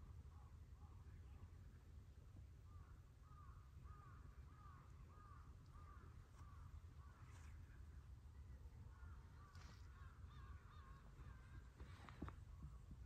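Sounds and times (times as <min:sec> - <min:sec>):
low outdoor rumble: 0:00.0 - 0:13.0
faint bird calling: 0:02.6 - 0:07.8, 0:08.8 - 0:12.8.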